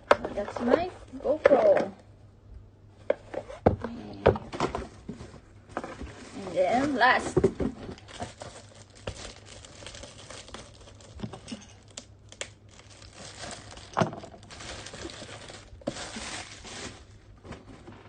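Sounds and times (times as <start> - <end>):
packaging rustling and crinkling: 4.6 - 18.0.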